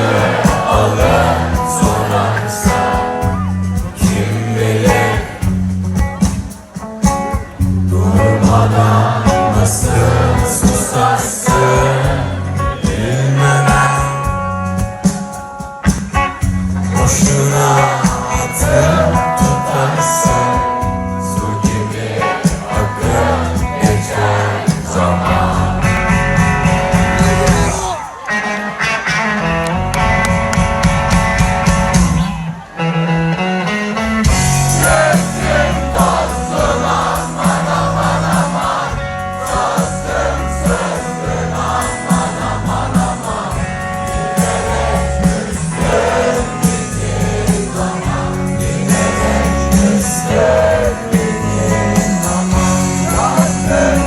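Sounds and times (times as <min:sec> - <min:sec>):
heavy bass line: 0:00.0 - 0:06.2, 0:07.5 - 0:14.8, 0:22.8 - 0:28.0, 0:34.2 - 0:54.0
person singing: 0:00.0 - 0:15.0, 0:16.8 - 0:29.6, 0:34.0 - 0:54.0
rock band playing: 0:00.0 - 0:54.0.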